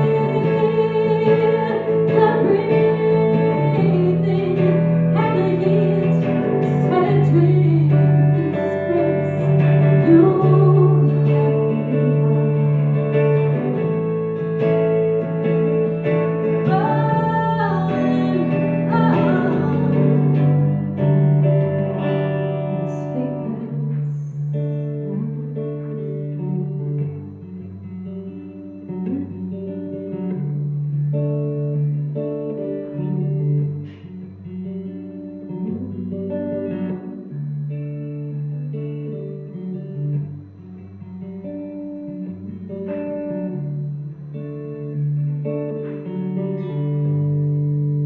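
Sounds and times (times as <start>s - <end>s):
bass notes: 0.0s - 31.2s
guitars: 0.0s - 48.0s.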